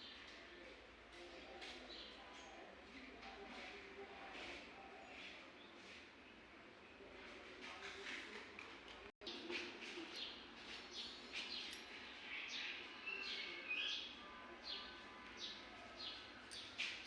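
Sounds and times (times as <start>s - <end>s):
birds chirping: 9.2s - 17.0s.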